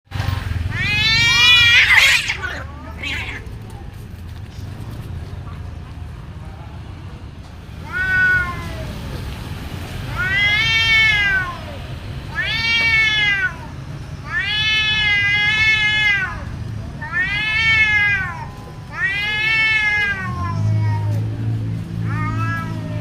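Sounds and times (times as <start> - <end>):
cats yowling: 0.6 - 3.7, 7.8 - 9.2, 10.1 - 21.3, 22.0 - 23.0.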